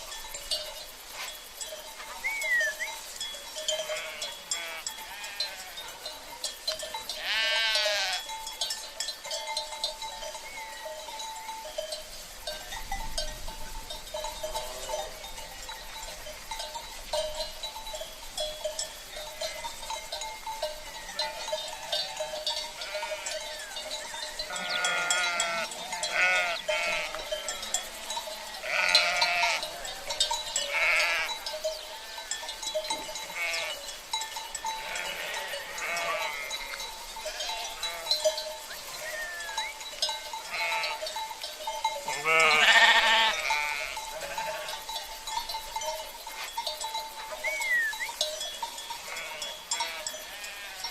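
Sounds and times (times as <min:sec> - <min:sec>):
cowbells clinking: 0:00.0 - 0:50.9
sheep bleating: 0:03.8 - 0:06.0, 0:07.2 - 0:08.3, 0:21.2 - 0:23.6, 0:24.5 - 0:29.7, 0:30.7 - 0:31.4, 0:33.2 - 0:33.8, 0:34.8 - 0:36.7, 0:37.3 - 0:38.3, 0:39.0 - 0:39.7, 0:40.4 - 0:41.0, 0:42.1 - 0:44.8, 0:49.0 - 0:50.9.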